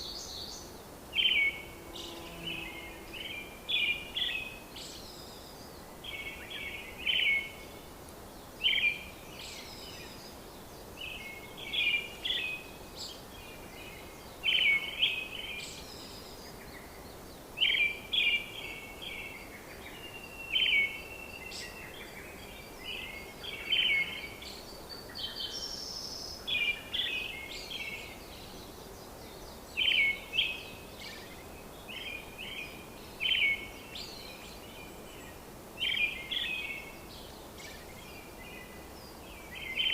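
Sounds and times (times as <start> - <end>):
bird singing chirps: 0.0 - 39.9
steady background hiss: 0.0 - 39.9.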